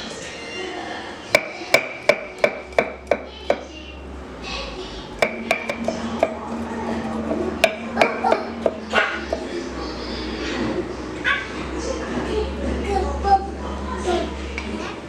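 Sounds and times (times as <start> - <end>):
knife chopping on cutting board: 1.4 - 3.2, 5.2 - 6.4.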